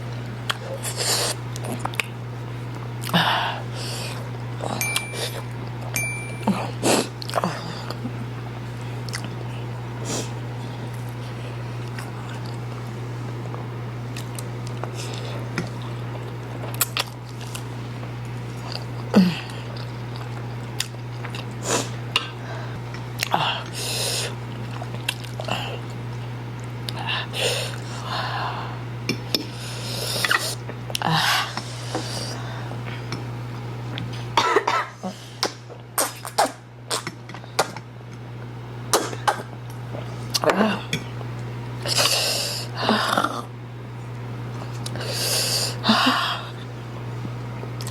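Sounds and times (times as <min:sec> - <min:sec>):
wet chewing and smacking: 0:01.5 - 0:02.2, 0:09.0 - 0:09.4, 0:24.5 - 0:25.5
low hum: 0:04.8 - 0:06.8
people coughing: 0:34.4 - 0:35.0.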